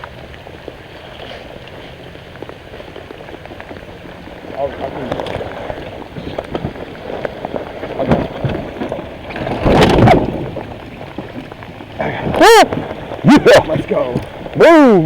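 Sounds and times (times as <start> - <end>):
rain pattering on water: 0.0 - 15.0
man shouting: 12.4 - 12.7, 14.6 - 15.0.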